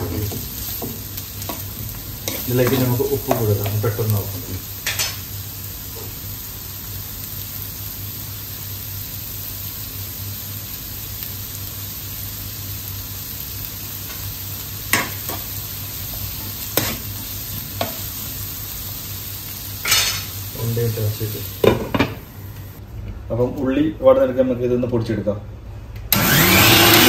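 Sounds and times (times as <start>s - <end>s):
onions sizzling in oil: 0.0s - 22.8s.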